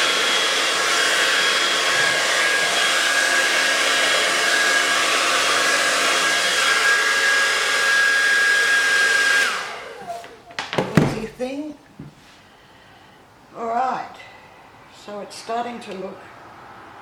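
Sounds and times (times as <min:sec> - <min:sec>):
hairdryer blowing with high whine: 0:00.0 - 0:11.4
light knocks: 0:10.6 - 0:12.2.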